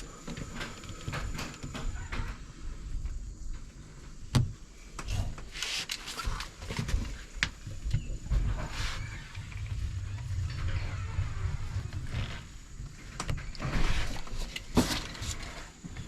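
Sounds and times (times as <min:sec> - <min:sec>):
roller rubbing on screen: 0:08.3 - 0:15.7.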